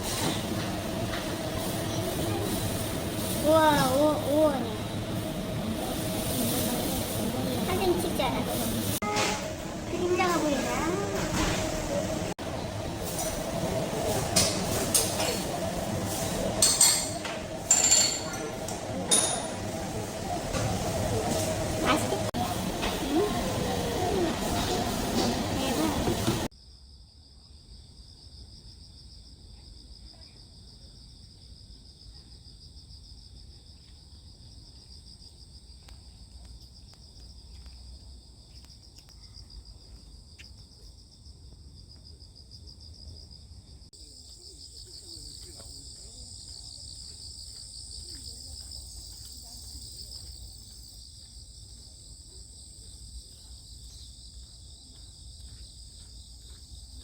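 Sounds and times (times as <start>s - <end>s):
crickets pulsing trill: 26.6s - 57.0s.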